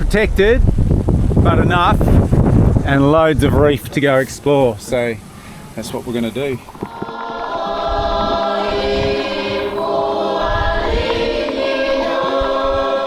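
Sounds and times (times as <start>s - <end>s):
choir-like voices holding chords: 6.7s - 13.0s.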